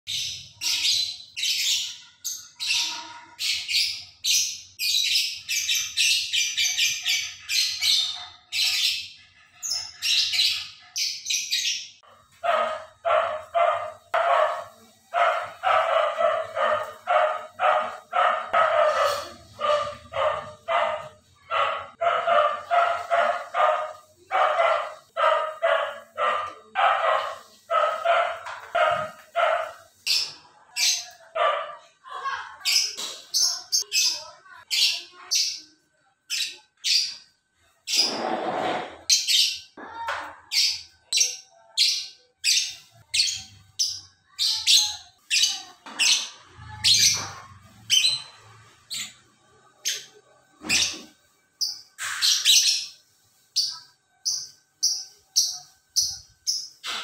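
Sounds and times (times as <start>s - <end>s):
caged birds calling: 0.0s - 57.0s.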